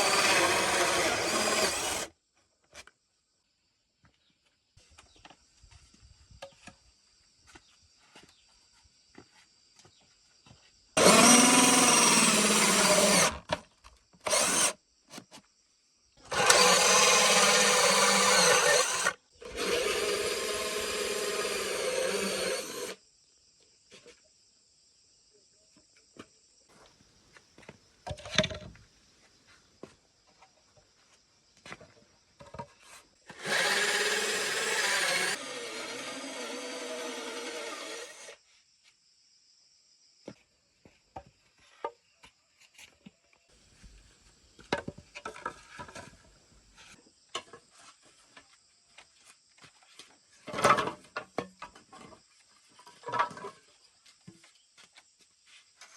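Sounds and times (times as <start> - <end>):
handheld power tool running: 0.0 - 2.1, 11.0 - 13.4, 14.2 - 14.8, 16.3 - 23.0, 33.3 - 38.3.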